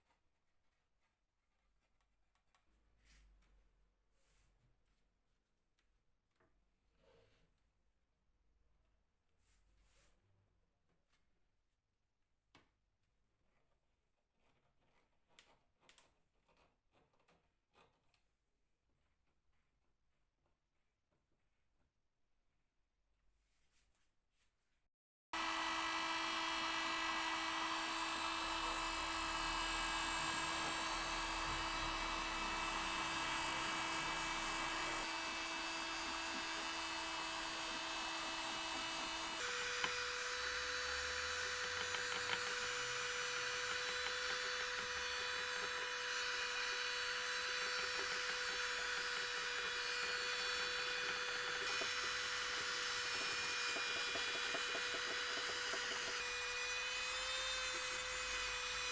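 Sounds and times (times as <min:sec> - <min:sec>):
power tool motor whining and grinding: 0:25.4 - 0:58.9.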